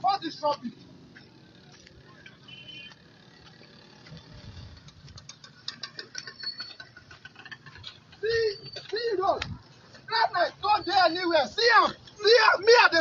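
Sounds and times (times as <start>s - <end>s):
gravel crunching and clicking: 0.5s - 10.7s.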